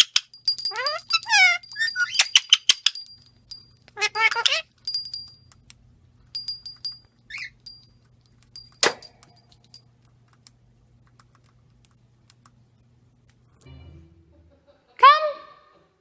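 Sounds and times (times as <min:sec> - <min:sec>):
high metallic pings: 0:00.3 - 0:05.4, 0:06.4 - 0:07.9, 0:08.6 - 0:09.8
falling chirp: 0:00.4 - 0:03.2.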